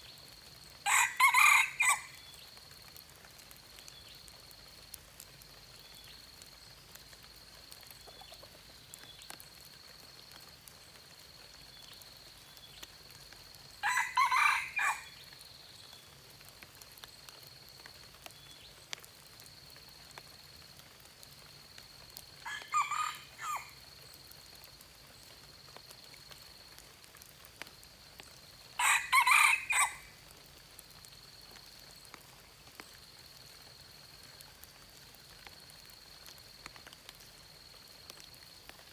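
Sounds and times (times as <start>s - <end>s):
rooster crowing: 0.8s - 2.2s, 13.8s - 15.2s, 22.4s - 23.8s, 28.8s - 30.1s.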